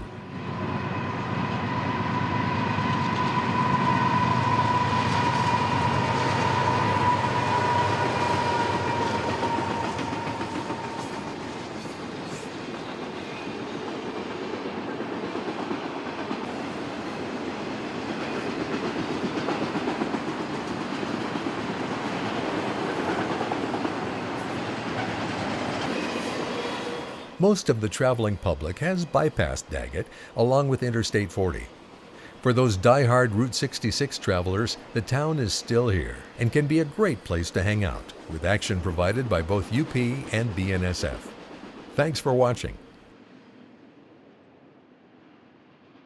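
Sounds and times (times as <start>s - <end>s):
freight train wheels clicking: 4.5s - 26.7s.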